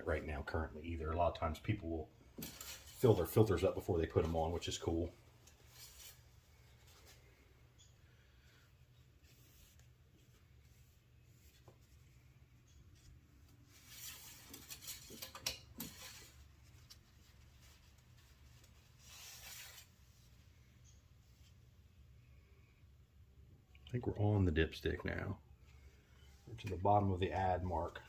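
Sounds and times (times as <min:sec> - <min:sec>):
faint clicks and scrapes: 0:05.4 - 0:08.0, 0:08.6 - 0:21.6
brief rub: 0:19.0 - 0:19.9.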